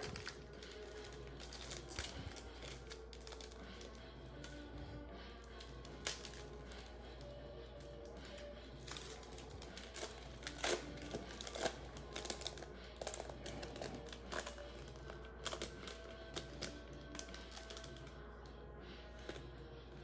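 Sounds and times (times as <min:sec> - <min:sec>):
card pack wrapper crinkling: 0:00.0 - 0:03.9, 0:08.8 - 0:18.1
faint background music: 0:00.0 - 0:20.0.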